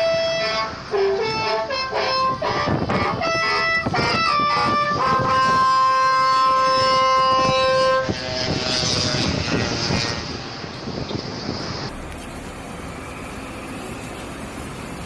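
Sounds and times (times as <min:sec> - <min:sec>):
truck multi-tone horn chord: 0:00.0 - 0:08.4
truck engine with high hiss: 0:00.0 - 0:15.0.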